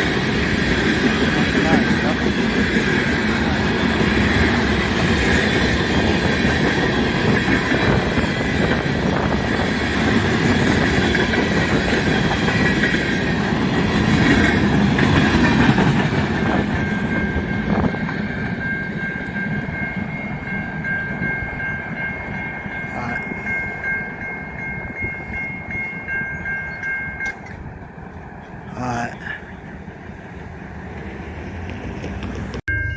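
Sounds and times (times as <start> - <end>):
wheels clacking over rail joints: 0.0 - 20.0
freight train rumbling: 0.0 - 32.9.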